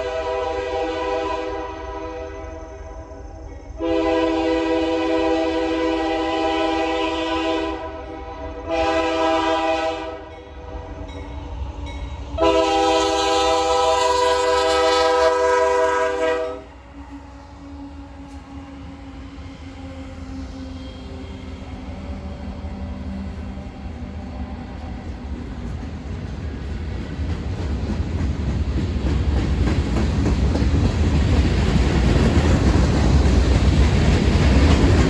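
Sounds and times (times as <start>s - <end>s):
locomotive chime air horn: 0.0s - 3.2s, 3.8s - 11.0s, 12.4s - 16.8s
train running past: 0.0s - 35.0s.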